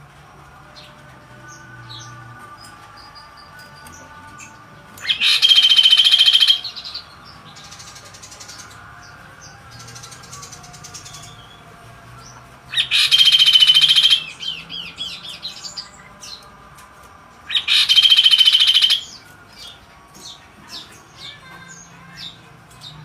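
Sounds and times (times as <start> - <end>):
songbird rattling trills: 2.9 - 8.8, 12.7 - 16.4, 17.5 - 23.0.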